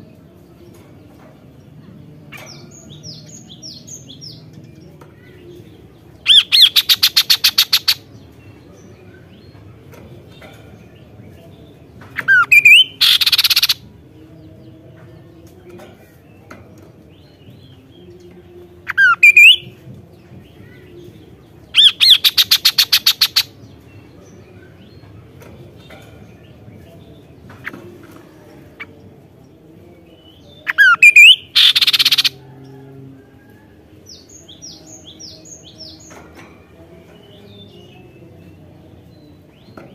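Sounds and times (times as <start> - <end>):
bird calling with whistles and rattle: 6.3 - 8.1, 12.2 - 13.8, 18.9 - 19.7, 21.8 - 23.5, 30.6 - 32.4.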